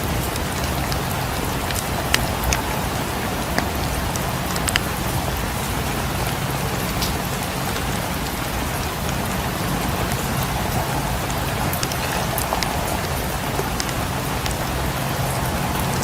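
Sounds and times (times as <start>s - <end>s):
rain falling on a cabin: 0.0s - 16.0s
wood fire crackling: 0.0s - 16.0s.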